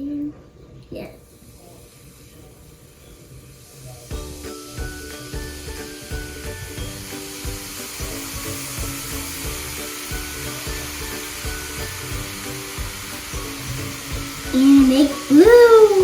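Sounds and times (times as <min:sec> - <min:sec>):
fizzing hiss: 0:01.3 - 0:16.0
music with steady beat: 0:04.1 - 0:16.0.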